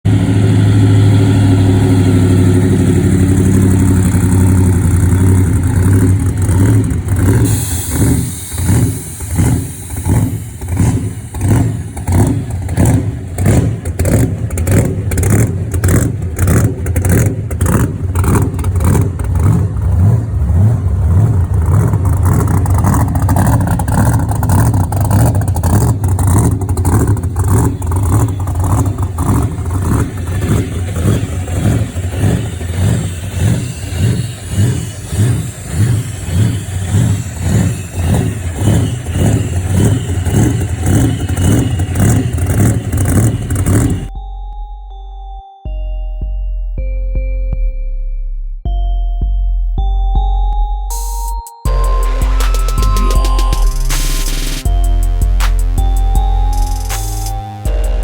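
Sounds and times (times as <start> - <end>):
loud engine loping: 0.0 - 44.1, 51.7 - 58.0
brief hiss: 7.5 - 10.5.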